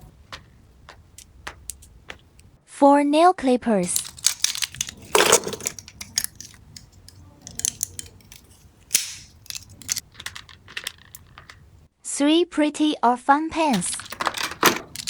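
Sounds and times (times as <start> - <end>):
packaging rustling: 3.8 - 11.8, 13.7 - 15.0
small items clicking and snapping: 3.8 - 11.9, 13.7 - 15.0.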